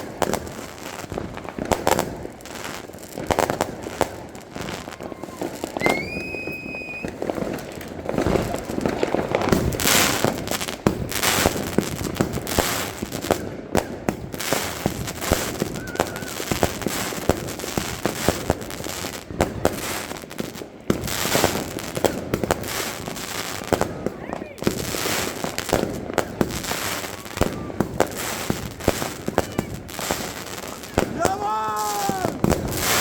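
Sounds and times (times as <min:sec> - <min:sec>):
firecracker bangs and crackling: 0:00.0 - 0:33.0
firework whistle: 0:04.6 - 0:07.4, 0:15.2 - 0:17.0, 0:26.2 - 0:33.0.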